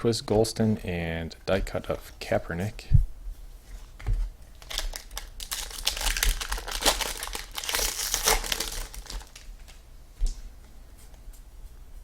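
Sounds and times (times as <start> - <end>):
wrapper crinkling and tearing: 4.5 - 9.7.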